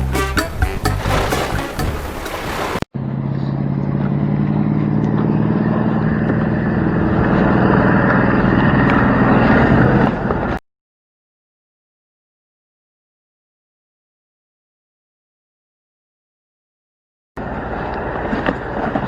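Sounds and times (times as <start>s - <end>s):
engine running steadily: 3.0s - 10.6s, 17.4s - 19.0s.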